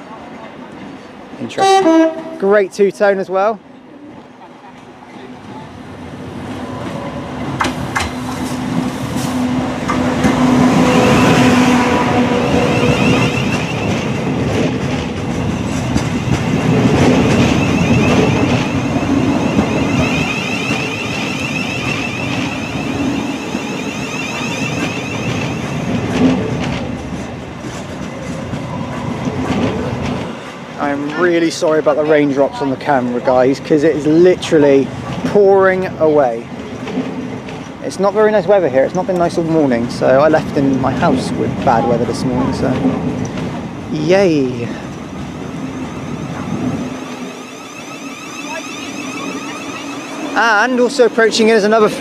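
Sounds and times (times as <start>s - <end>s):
electric train hum: 0.0s - 52.0s
high whine: 17.3s - 26.3s, 45.9s - 51.4s.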